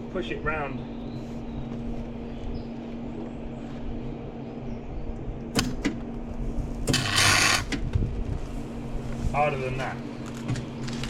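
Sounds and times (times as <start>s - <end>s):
steady low hum: 0.0s - 11.0s
welding arc crackling: 6.9s - 7.7s.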